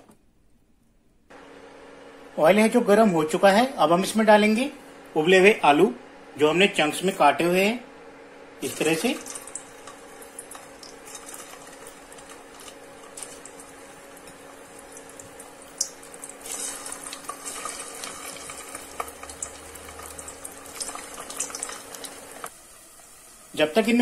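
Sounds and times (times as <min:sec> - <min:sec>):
potatoes frying in hot oil: 0:08.6 - 0:24.0.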